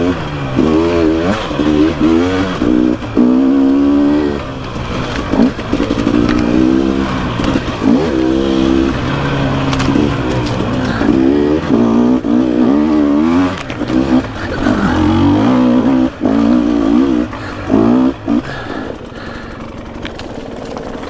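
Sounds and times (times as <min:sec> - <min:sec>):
dirt bike engine revving: 0:00.0 - 0:21.0
light clatter: 0:04.4 - 0:11.8, 0:13.4 - 0:14.8.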